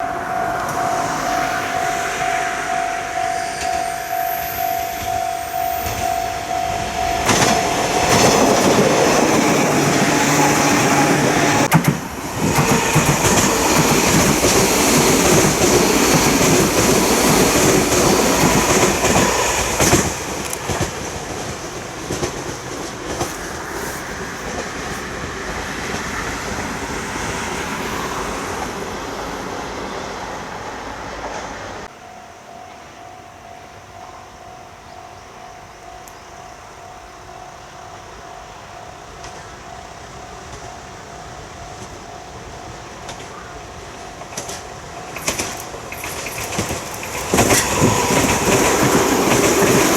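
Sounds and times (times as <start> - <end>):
electric train passing: 0.0 - 49.9
wheels clattering over rail joints: 4.9 - 26.8, 43.0 - 49.9.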